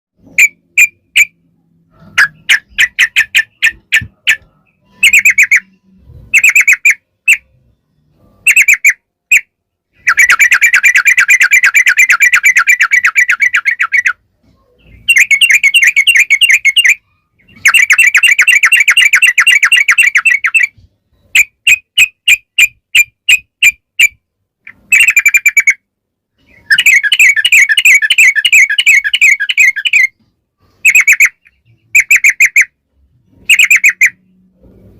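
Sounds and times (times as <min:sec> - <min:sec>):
bird singing loudly: 0:02.1 - 0:07.6, 0:10.0 - 0:14.2, 0:14.8 - 0:20.8, 0:26.4 - 0:30.2, 0:33.4 - 0:34.4.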